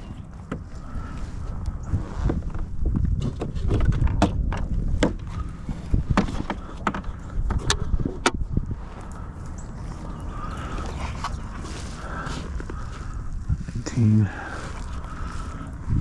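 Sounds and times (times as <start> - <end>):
steady low rumble: 0.0 - 16.0
sharp knocks and clicks: 3.0 - 5.3, 6.1 - 8.4.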